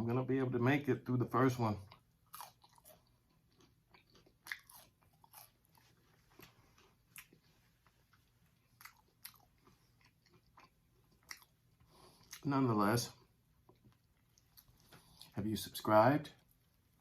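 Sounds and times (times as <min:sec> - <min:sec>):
close chewing of food: 0:01.7 - 0:12.6, 0:13.2 - 0:15.4.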